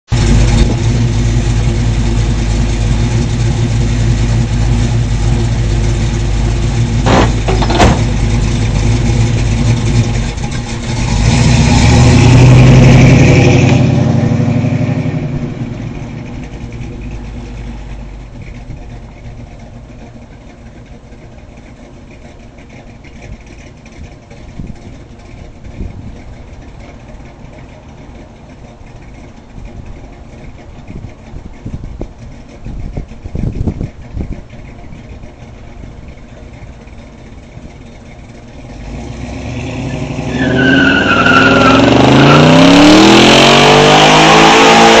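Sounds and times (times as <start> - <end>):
car engine running: 0.1 - 45.0
engine pops: 5.6 - 11.0.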